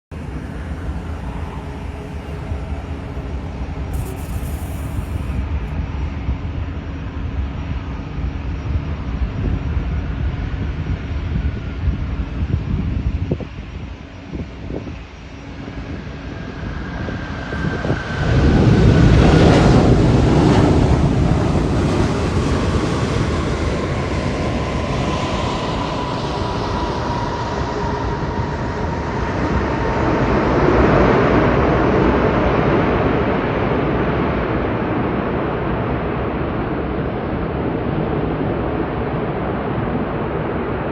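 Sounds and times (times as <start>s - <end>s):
jet engine whine: 0.0s - 40.9s
jet engine roar: 0.1s - 5.7s.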